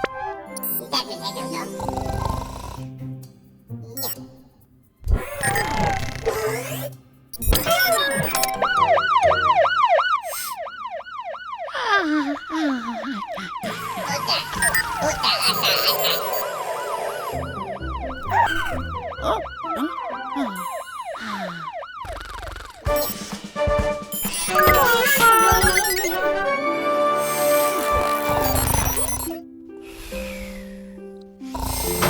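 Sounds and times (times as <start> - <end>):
cartoon siren wail: 7.5 - 23.0, 24.3 - 26.9.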